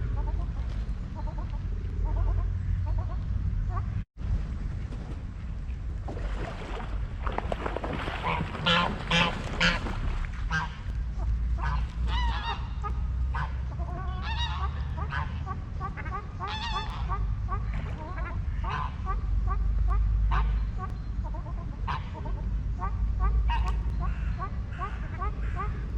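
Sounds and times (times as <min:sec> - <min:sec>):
low steady rumble: 0:00.0 - 0:25.9
waterfowl harsh calls: 0:08.1 - 0:10.8, 0:11.6 - 0:25.8.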